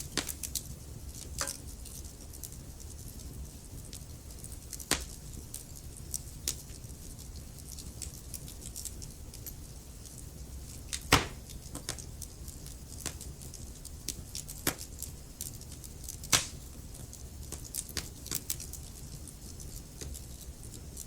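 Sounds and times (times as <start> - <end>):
burning wood popping: 0.0 - 21.0
low rumble of flames: 0.0 - 21.0
wood fire crackling: 0.0 - 21.0.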